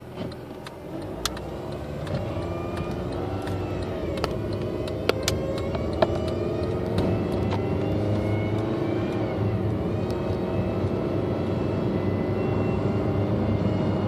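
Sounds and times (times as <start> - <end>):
car engine and road noise: 0.0 - 14.0
sharp clicks: 0.2 - 7.7.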